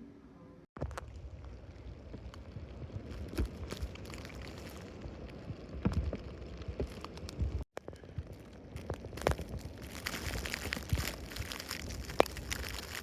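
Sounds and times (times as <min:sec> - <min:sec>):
crackles and thumps: 0:00.8 - 0:13.0
wind rumbling on microphone: 0:00.8 - 0:13.0.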